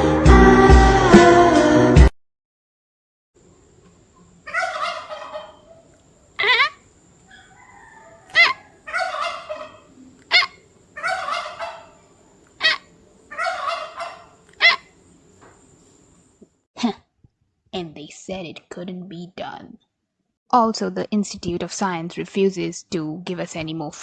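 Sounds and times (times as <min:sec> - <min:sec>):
turkey gobbling: 0:04.2 - 0:15.0
short sharp turkey calls: 0:04.5 - 0:15.0.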